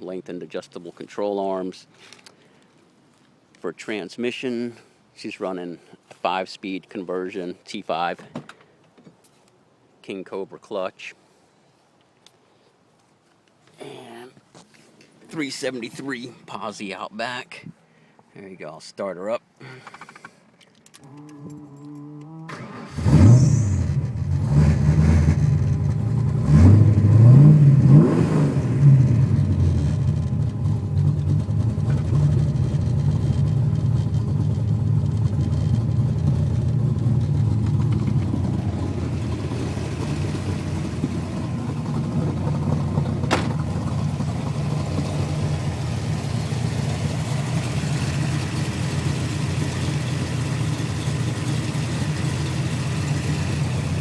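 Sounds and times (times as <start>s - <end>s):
car engine starting and revving: 22.5s - 54.0s
car engine idling: 29.1s - 54.0s.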